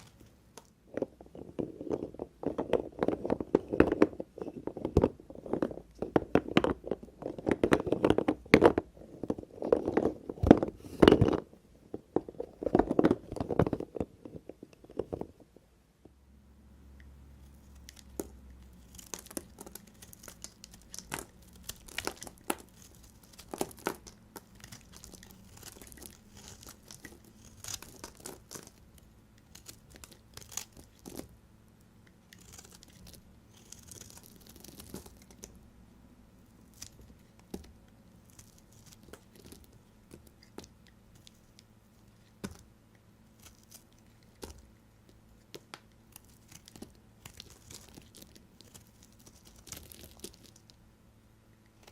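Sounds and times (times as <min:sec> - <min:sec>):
knife cutting through soap: 0:32.3 - 0:35.4.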